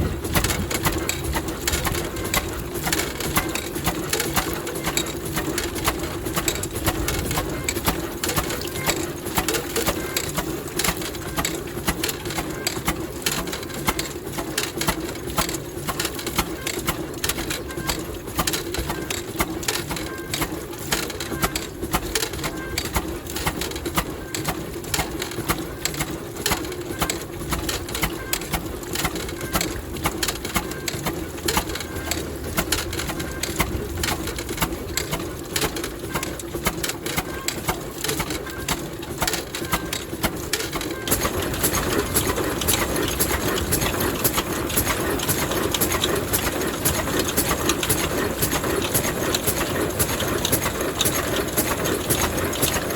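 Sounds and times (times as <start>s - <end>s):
diesel engine knocking: 0.0s - 52.9s.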